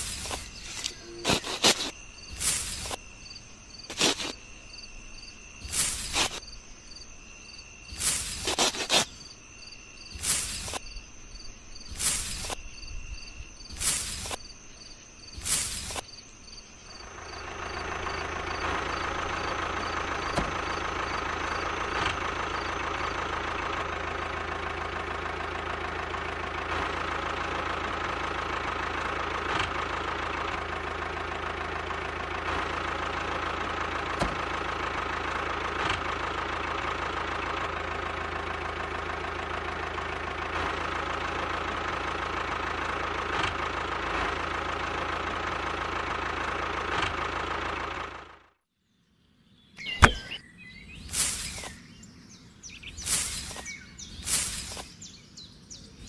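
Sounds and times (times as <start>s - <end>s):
toy tractor motor whine: 0.0s - 3.0s.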